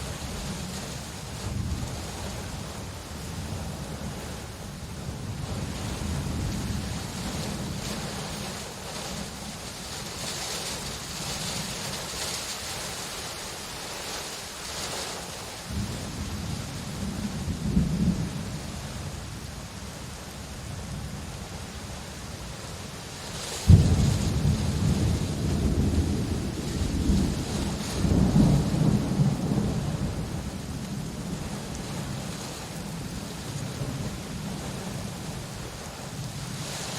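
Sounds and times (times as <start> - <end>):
steady rain: 0.0 - 36.9
thunder rumbling: 15.7 - 19.0, 23.7 - 35.7
loud thunderclap: 23.7 - 30.6.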